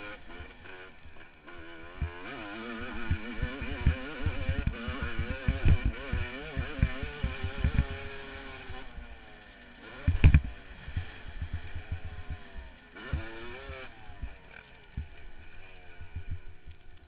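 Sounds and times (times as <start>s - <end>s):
motocross engine revving: 0.0s - 17.0s
thumps on microphone: 10.1s - 10.5s.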